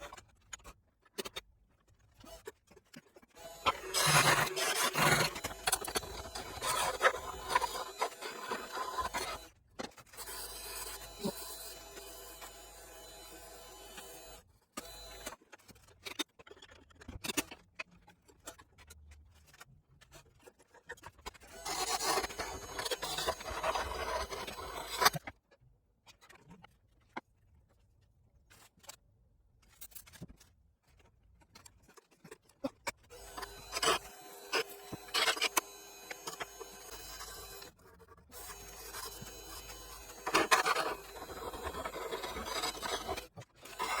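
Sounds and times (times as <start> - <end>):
tool scraping wood on lathe: 3.4 - 9.5, 10.2 - 15.3, 21.6 - 25.2, 33.2 - 37.8, 38.4 - 44.0.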